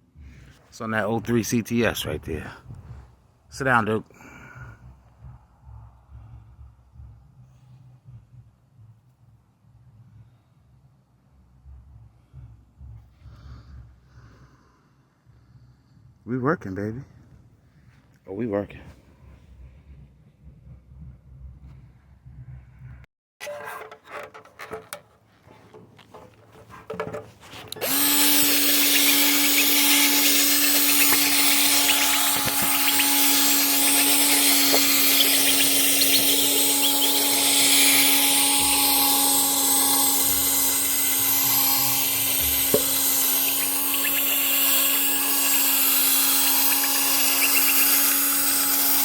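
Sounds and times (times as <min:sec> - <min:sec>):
electric power tool running: 0:27.7 - 0:49.0.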